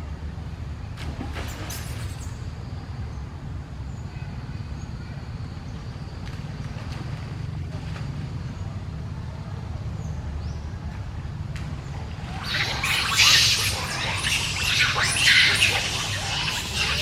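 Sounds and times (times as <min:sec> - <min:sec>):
shrill animal screeching: 0:12.2 - 0:17.0.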